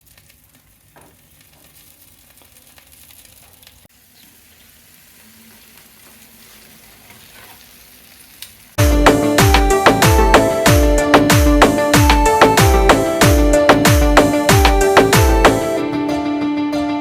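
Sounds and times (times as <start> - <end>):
food sizzling in hot oil: 0.0 - 8.8
loud music with a beat: 8.8 - 17.0.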